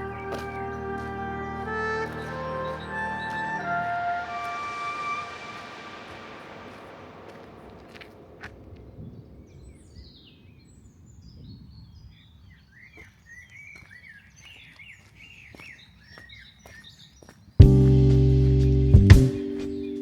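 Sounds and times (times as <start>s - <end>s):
songbirds chirping and warbling: 0.0s - 17.8s.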